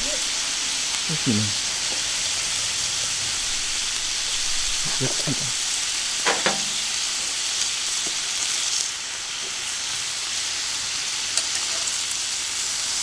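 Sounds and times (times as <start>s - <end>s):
meat sizzling on a griddle: 0.0s - 13.0s.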